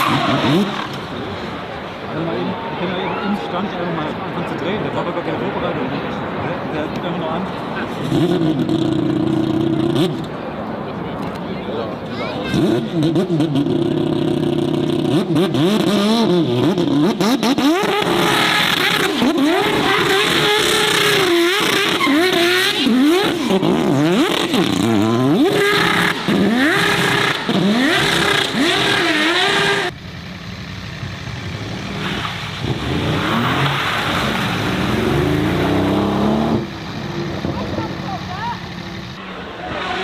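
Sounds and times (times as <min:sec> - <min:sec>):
car engine revving hard: 0:12.5 - 0:30.0, 0:31.5 - 0:40.0.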